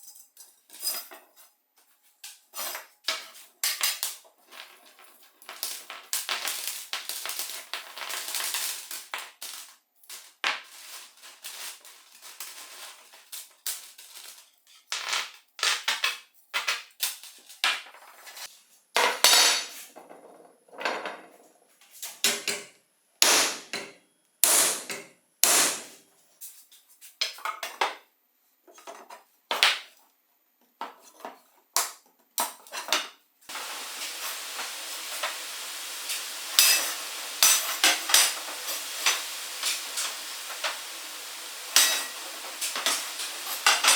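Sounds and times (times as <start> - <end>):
steady hiss: 23.2 - 23.7, 24.4 - 26.0, 33.5 - 43.9.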